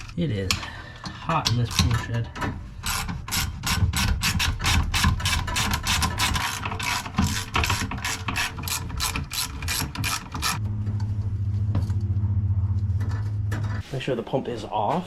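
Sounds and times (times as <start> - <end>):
steady low hum: 10.5 - 15.0.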